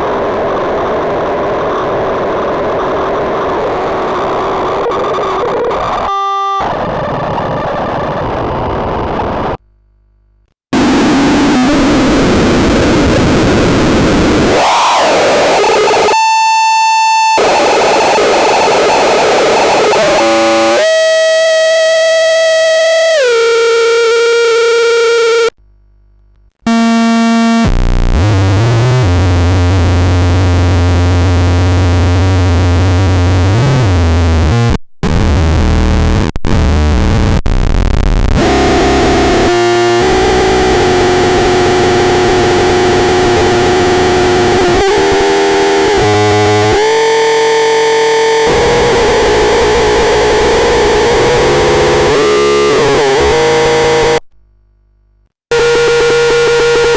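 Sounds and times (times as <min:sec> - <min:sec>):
harsh distorted synth buzzing: 0:10.8 - 0:25.6, 0:26.7 - 0:54.3, 0:55.5 - 0:56.9.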